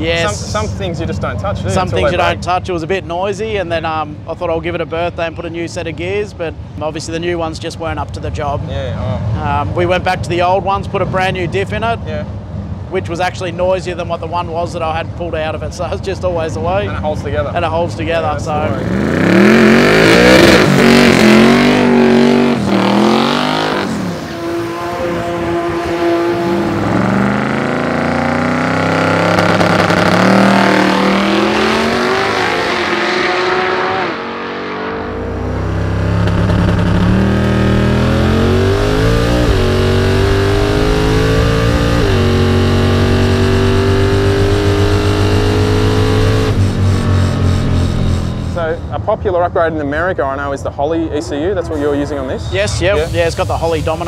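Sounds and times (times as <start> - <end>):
car engine accelerating hard: 18.5 - 48.9.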